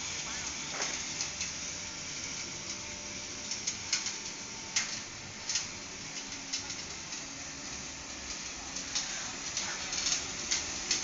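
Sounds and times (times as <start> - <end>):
flame hissing: 0.0 - 11.0
sharp crackles and clicks: 2.4 - 11.0.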